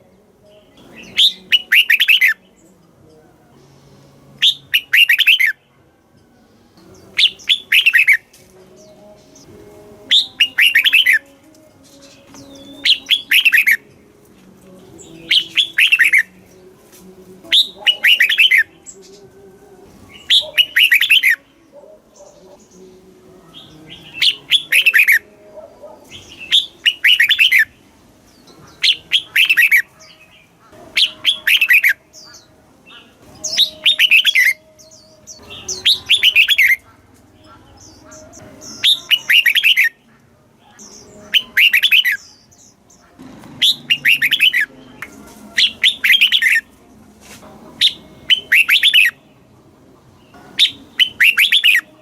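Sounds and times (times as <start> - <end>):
bulbul singing: 0.0 - 52.0.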